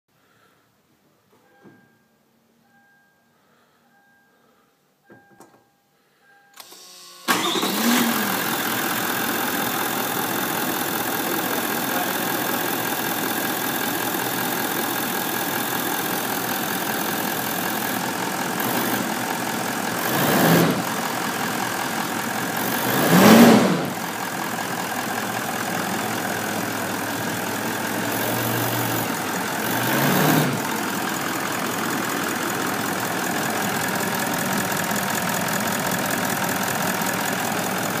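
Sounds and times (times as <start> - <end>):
diesel engine starting and idling: 6.6 - 38.0
engine revs blipped: 20.0 - 21.0, 22.5 - 24.1, 27.8 - 30.8.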